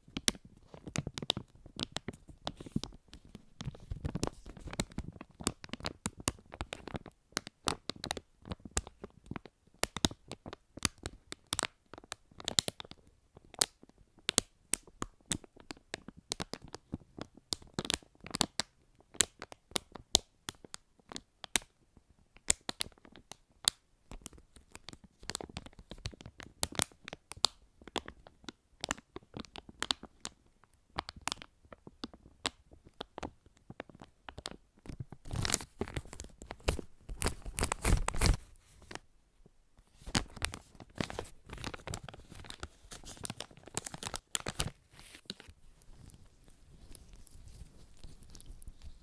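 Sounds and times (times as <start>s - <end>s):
crinkling rustle: 33.0s - 39.0s, 39.8s - 49.0s.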